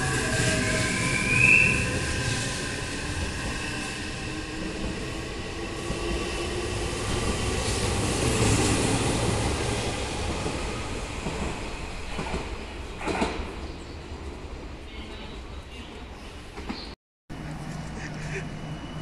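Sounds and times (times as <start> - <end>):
train wheels rumbling on rails: 0.0 - 13.8.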